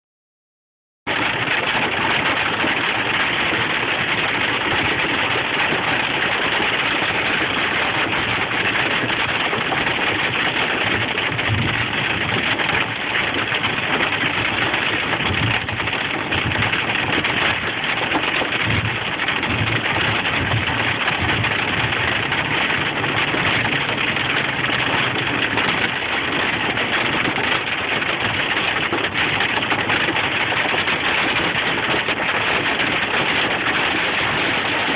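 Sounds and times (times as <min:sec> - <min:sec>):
hailstones clattering: 0:01.1 - 0:34.9.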